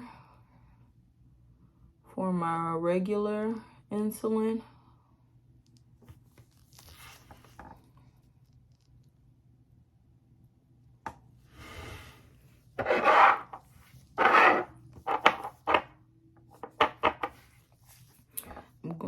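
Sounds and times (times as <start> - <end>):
rubbing scrapes: 11.6 - 15.8.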